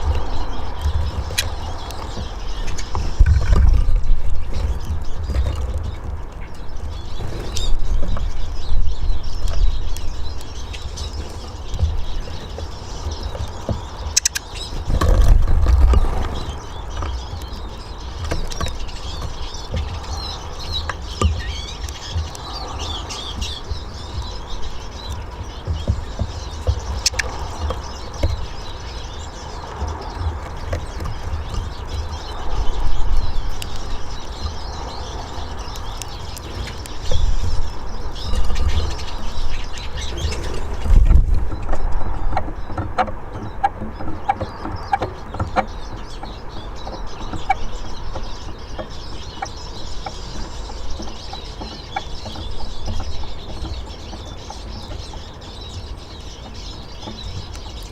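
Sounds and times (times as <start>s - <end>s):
low rumbling thumps: 0.0s - 57.9s
small birds twittering: 0.0s - 57.9s
sharp clicks: 14.1s - 16.4s.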